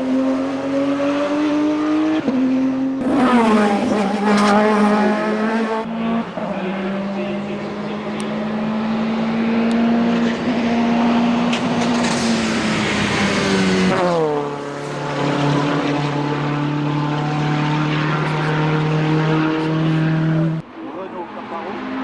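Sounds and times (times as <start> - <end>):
race car engine at high revs: 0.0 - 22.0.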